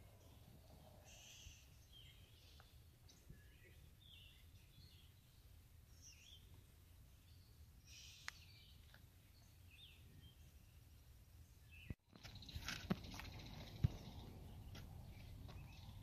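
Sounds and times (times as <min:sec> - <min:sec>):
faint bird chirps: 0:00.0 - 0:06.6, 0:07.2 - 0:11.0
low outdoor hum: 0:00.0 - 0:16.0.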